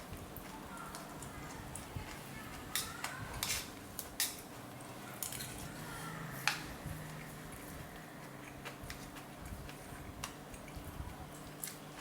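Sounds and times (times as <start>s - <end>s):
cutlery clinking against bowl: 2.7s - 4.5s, 5.2s - 5.6s.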